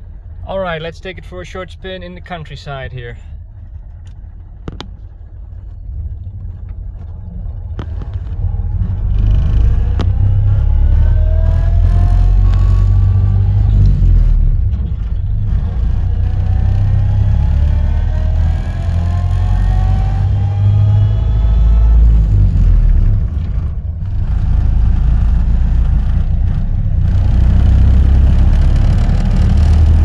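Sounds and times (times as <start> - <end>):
car engine rumble: 0.0 - 30.0
rising whine: 7.5 - 30.0.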